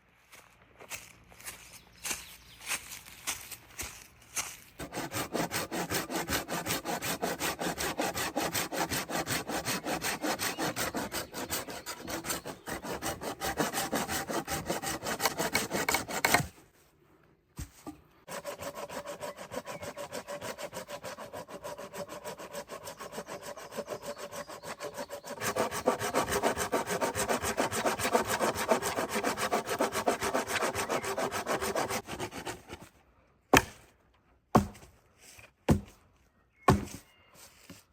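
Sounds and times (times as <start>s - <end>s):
hand saw cutting wood: 4.8s - 16.6s, 18.2s - 32.9s, 33.5s - 33.8s.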